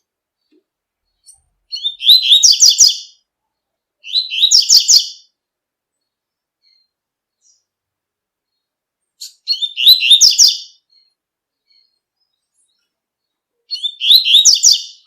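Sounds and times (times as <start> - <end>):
bird singing high repeated notes: 1.2 - 3.2, 4.0 - 5.3, 9.2 - 12.0, 13.7 - 15.0.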